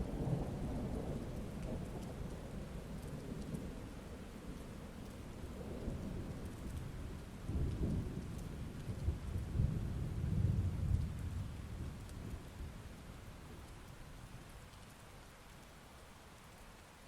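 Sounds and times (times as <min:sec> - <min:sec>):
heavy rain falling: 0:00.0 - 0:17.0
thunder rumbling: 0:07.1 - 0:12.8.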